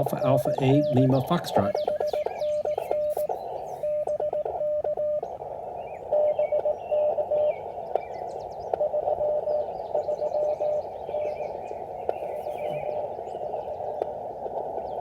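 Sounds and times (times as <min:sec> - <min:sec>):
morse code tone: 0:00.0 - 0:05.3, 0:06.1 - 0:07.6, 0:08.8 - 0:10.8
birds chirping: 0:00.0 - 0:15.0
receiver hiss: 0:00.0 - 0:15.0.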